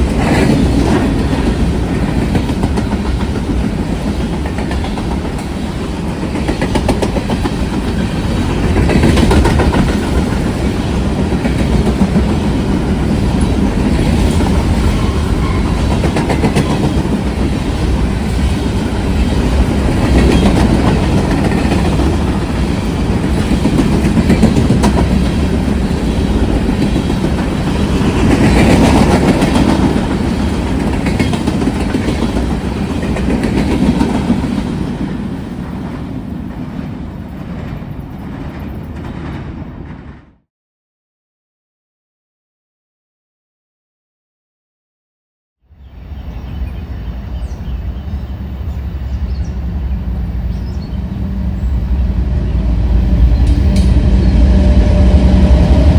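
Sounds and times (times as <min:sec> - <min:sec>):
clickety-clack over rail joints: 0:00.0 - 0:40.4, 0:53.0 - 0:55.9
train wheels rumbling: 0:00.0 - 0:40.4, 0:46.0 - 0:55.9.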